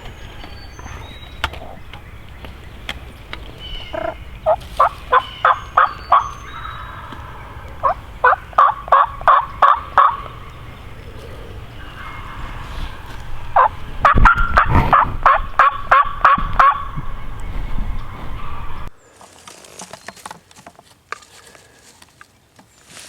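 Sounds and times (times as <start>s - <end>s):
faint songbird chirps: 0.0s - 14.6s
wild turkey gobbling: 0.1s - 17.4s.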